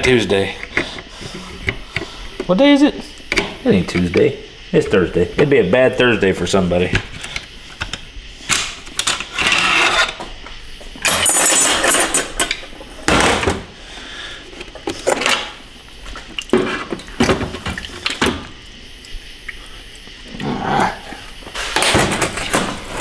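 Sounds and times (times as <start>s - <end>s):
metal parts rattling: 11.0s - 12.6s
metal parts clanking and scraping: 11.0s - 13.6s.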